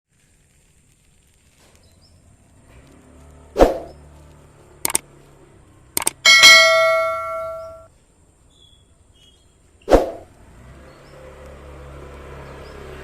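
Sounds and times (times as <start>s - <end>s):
sharp clicks: 4.8s - 5.0s, 6.0s - 7.9s
metallic bell-like ding: 6.0s - 7.9s.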